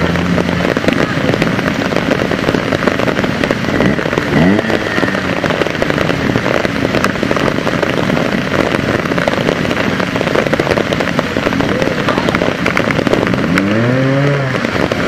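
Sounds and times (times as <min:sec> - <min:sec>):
motorcycle engine revving: 0:00.0 - 0:15.0
torrential rain falling: 0:00.0 - 0:15.0.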